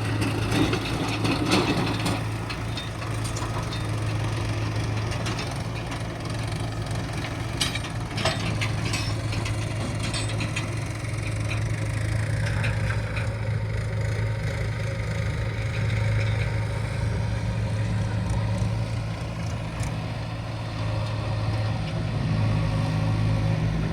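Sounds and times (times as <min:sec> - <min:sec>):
heavy diesel machinery running: 0:00.0 - 0:23.9
knocks and clanks: 0:07.1 - 0:13.4.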